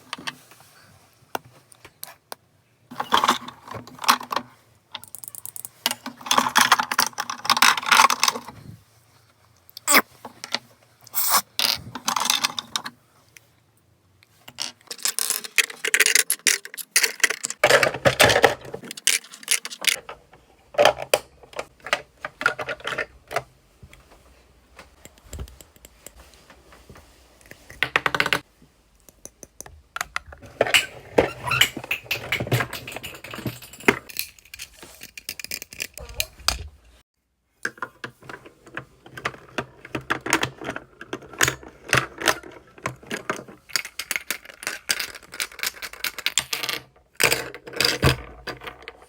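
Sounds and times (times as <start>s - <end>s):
plastic objects clicking and rustling: 2.9s - 8.6s, 9.8s - 13.0s, 14.3s - 23.5s, 29.5s - 36.8s, 37.6s - 49.0s.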